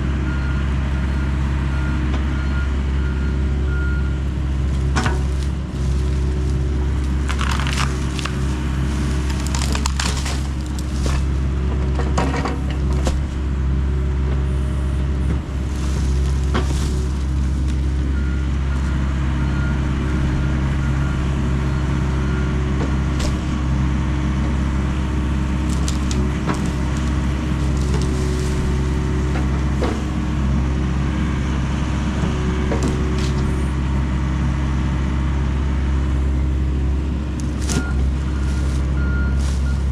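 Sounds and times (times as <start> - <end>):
excavator diesel engine running: 0.0 - 39.9
wood cracking and snapping: 4.8 - 13.4, 15.7 - 18.0, 22.9 - 23.7, 25.5 - 30.2, 32.6 - 33.7, 37.4 - 39.8.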